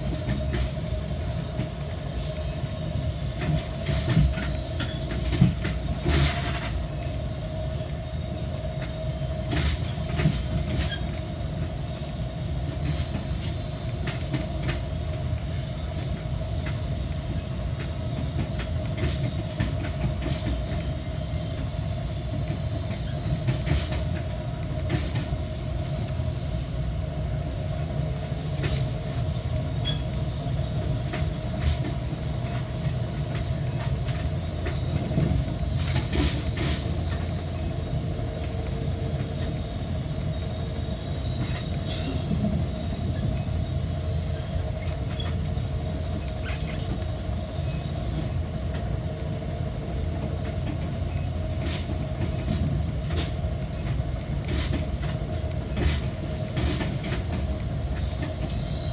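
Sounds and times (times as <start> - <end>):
train rumbling: 0.0 - 58.9
wheels clicking over rail joints: 30.9 - 37.5.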